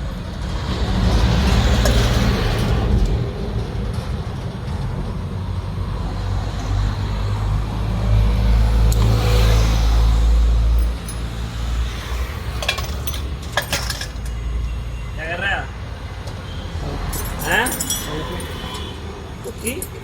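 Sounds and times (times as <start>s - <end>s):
vehicle engine rumbling: 0.0s - 20.0s
sharp metal clinks: 10.8s - 11.6s, 17.1s - 20.0s.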